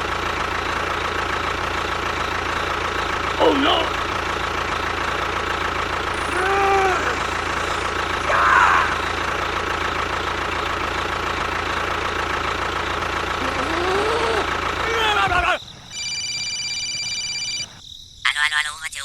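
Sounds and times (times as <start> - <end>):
voice-like exclamations: 3.4 - 4.1, 6.2 - 9.2, 13.4 - 15.6.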